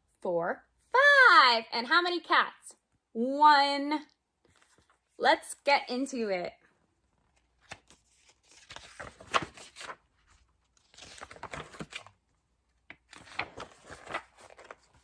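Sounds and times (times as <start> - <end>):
paper rustling and crinkling: 4.4 - 5.1, 7.2 - 15.0.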